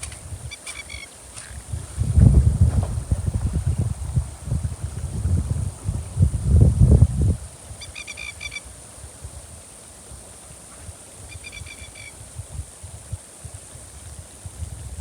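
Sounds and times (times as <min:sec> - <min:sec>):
wind buffeting microphone: 0:01.4 - 0:08.0, 0:10.8 - 0:15.0.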